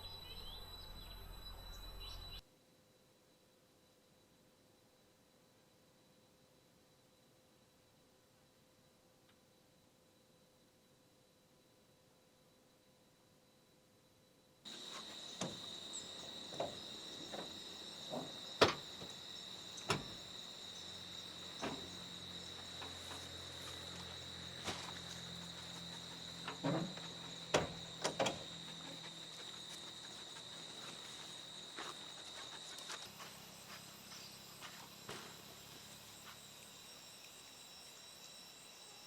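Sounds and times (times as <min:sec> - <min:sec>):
high-pitched insect drone: 0:00.0 - 0:02.4, 0:14.7 - 0:39.0.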